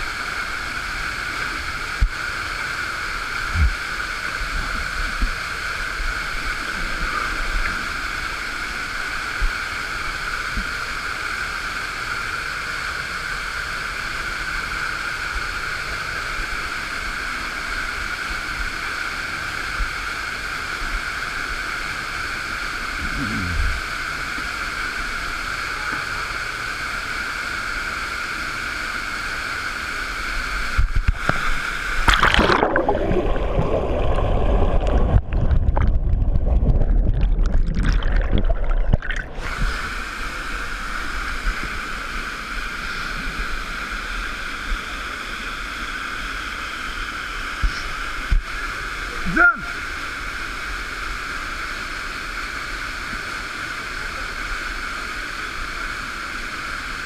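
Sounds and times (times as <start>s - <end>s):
muffled gurgling rumble: 3.3s - 8.5s, 22.9s - 24.1s, 30.6s - 42.0s
uneven splashing: 32.0s - 39.5s
waterfall rushing: 37.6s - 44.0s.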